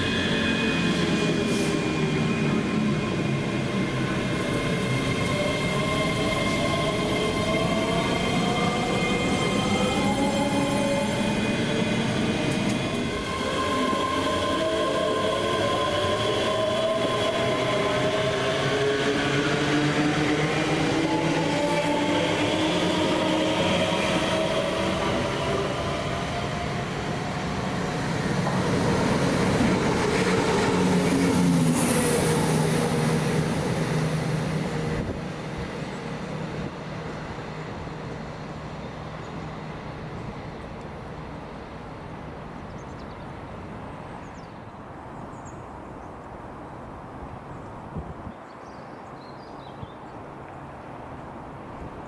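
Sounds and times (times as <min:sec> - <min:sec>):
passenger train passing: 0:00.0 - 0:52.0.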